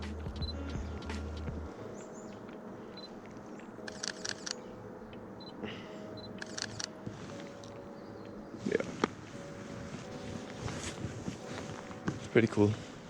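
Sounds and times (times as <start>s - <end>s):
camera shutter clicks: 3.9s - 4.6s, 6.4s - 7.0s.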